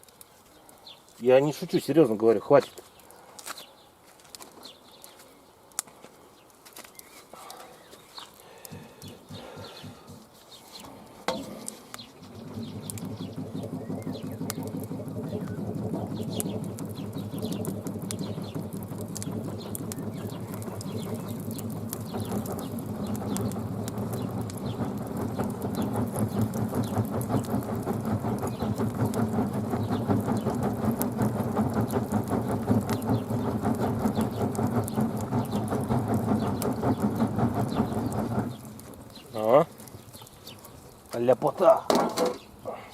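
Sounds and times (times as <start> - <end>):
crackling campfire: 0.0 - 41.8
small birds chirping: 0.0 - 42.9
fire low roar: 7.4 - 41.1
low pulsing hum: 10.9 - 39.3.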